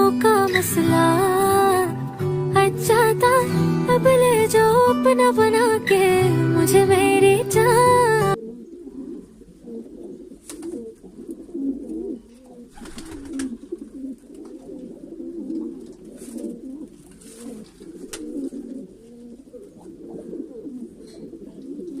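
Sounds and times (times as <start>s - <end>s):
pigeons cooing: 2.8s - 22.0s.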